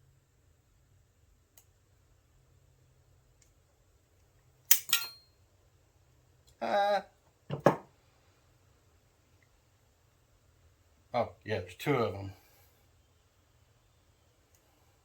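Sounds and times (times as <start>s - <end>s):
high ringing metal clink: 4.7s - 5.3s.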